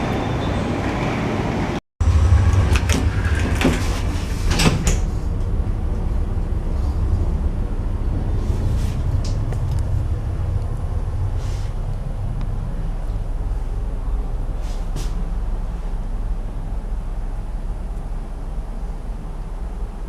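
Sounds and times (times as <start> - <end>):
lift car running rumble: 0.0 - 20.0
lift doors clicking and knocking: 2.7 - 5.6.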